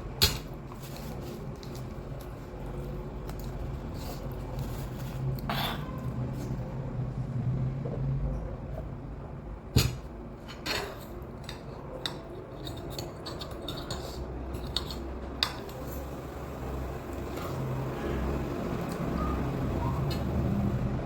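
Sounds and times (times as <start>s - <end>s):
utensils clicking against bowl: 10.6s - 16.1s.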